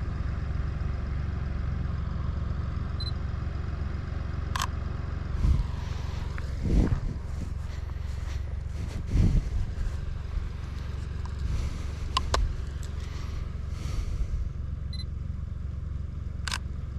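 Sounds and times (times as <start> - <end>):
car engine idling: 0.0 - 16.9.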